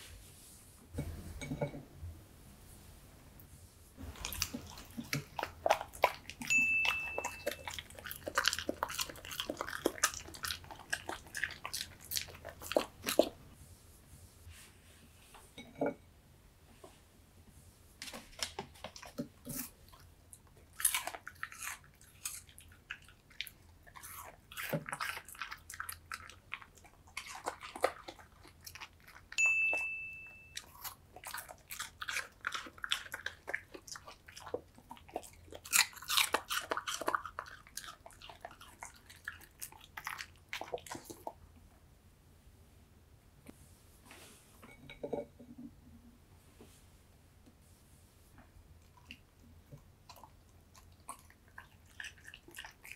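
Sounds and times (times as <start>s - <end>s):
dog chewing and crunching pear: 4.0s - 13.5s, 18.2s - 41.6s, 48.8s - 52.9s
short steady high tone: 6.5s - 7.6s, 29.4s - 30.6s.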